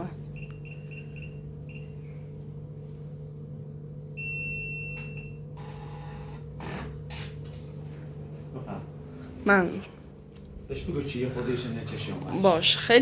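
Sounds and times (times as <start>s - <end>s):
steady low hum: 0.0s - 13.0s
long beep: 0.4s - 2.0s, 4.2s - 5.4s.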